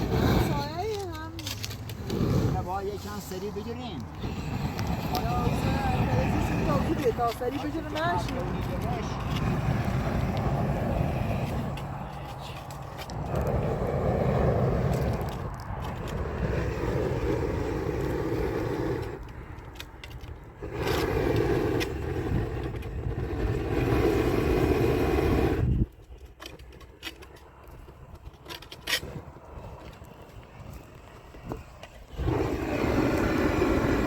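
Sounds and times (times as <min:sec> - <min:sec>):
gas blowtorch rushing: 0:00.0 - 0:26.7, 0:28.7 - 0:34.0
faint crackles and taps: 0:00.7 - 0:02.4, 0:06.9 - 0:13.8, 0:14.8 - 0:17.4, 0:25.8 - 0:32.1.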